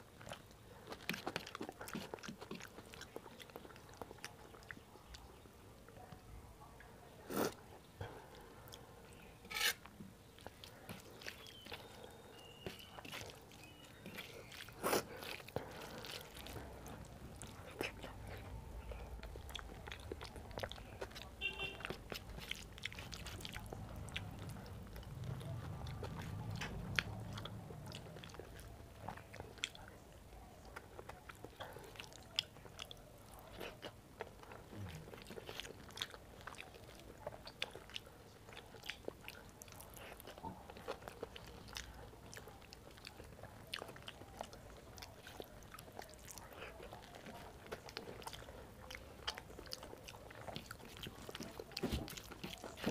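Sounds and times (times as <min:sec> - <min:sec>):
chewing soft food: 0:00.0 - 0:52.9.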